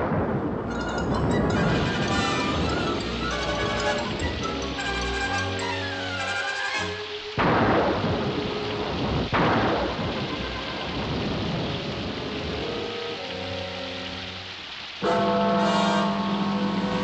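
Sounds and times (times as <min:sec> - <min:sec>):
thunderclaps with rumble: 0:00.0 - 0:05.2, 0:07.4 - 0:13.0
steady rain: 0:00.0 - 0:17.0
orchestral cartoon music: 0:00.6 - 0:07.4, 0:12.8 - 0:17.0.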